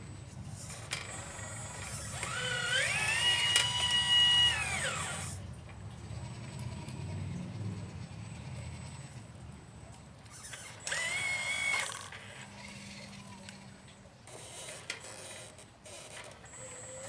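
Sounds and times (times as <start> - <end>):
faint low mechanical noise: 0.0 - 17.0
motor whining: 0.5 - 5.4, 10.2 - 17.0.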